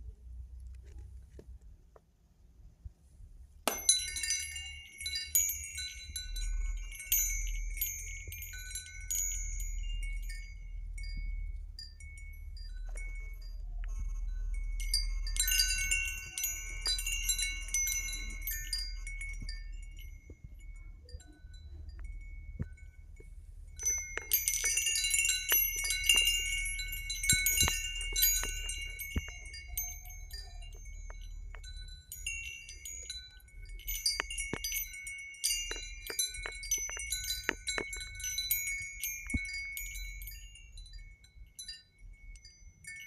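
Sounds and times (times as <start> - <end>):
wind chimes ringing: 3.7 - 43.0.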